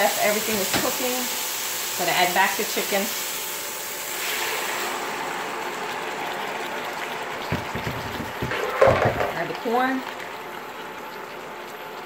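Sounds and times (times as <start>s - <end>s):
meat sizzling in a pan: 0.0s - 11.2s
dull knocks: 7.5s - 9.3s.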